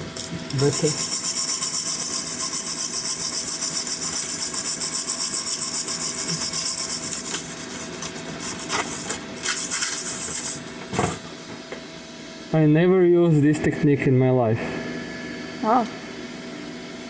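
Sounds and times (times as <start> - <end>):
wire brush scrubbing steel: 0.5 - 10.7.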